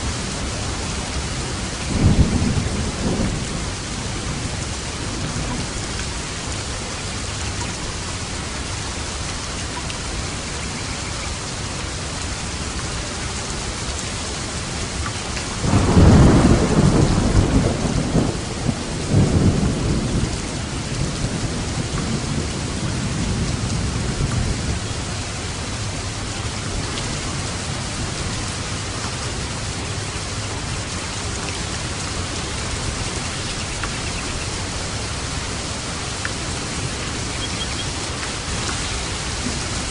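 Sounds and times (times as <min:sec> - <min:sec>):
thunder rumbling: 0:00.0 - 0:06.0, 0:15.5 - 0:39.9
heavy rain: 0:00.0 - 0:39.9.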